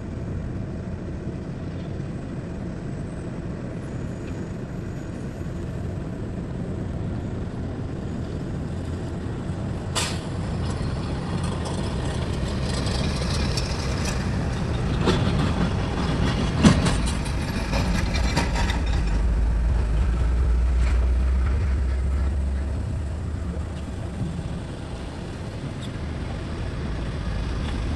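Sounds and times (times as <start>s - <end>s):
heavy diesel machinery running: 0.1s - 27.9s
clanks and rattles: 9.9s - 24.8s.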